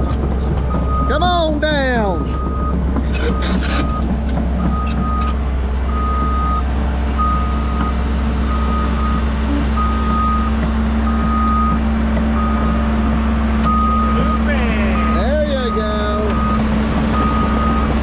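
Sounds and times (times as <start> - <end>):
diesel engine droning: 0.0 - 18.0
backup alarm beeping: 9.8 - 11.8, 13.6 - 18.0.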